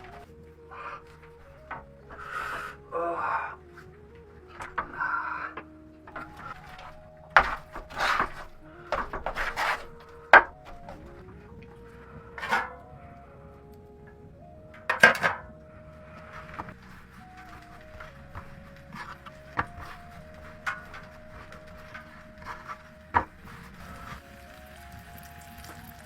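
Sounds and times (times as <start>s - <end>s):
quiet background music: 0.0s - 26.0s
pots and dishes clattering: 14.8s - 15.5s.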